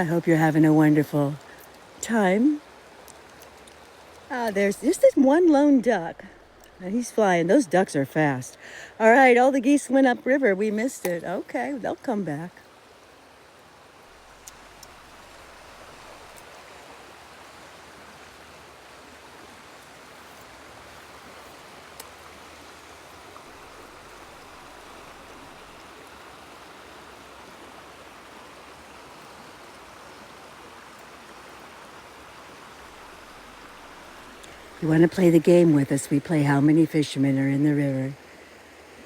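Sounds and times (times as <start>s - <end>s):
river water running over rocks: 0.0s - 39.0s
faint ticks: 1.4s - 2.0s, 3.0s - 4.7s, 14.3s - 16.9s, 19.8s - 22.4s, 32.7s - 34.7s.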